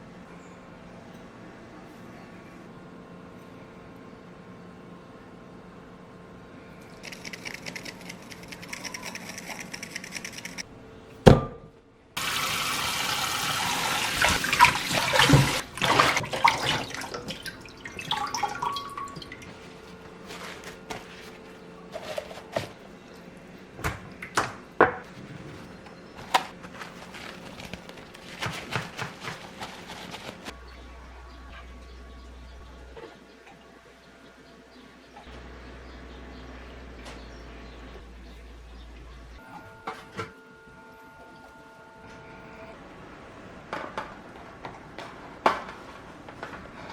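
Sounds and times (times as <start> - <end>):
tap water running into sink: 12.2 - 19.5.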